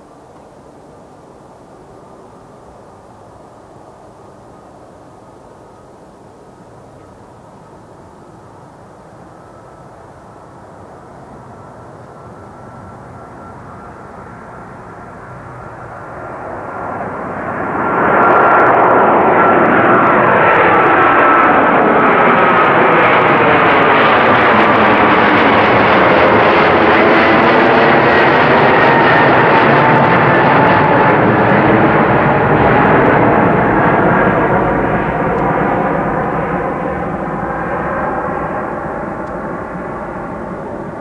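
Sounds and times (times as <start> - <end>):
aircraft passing close by: 8.4 - 41.0.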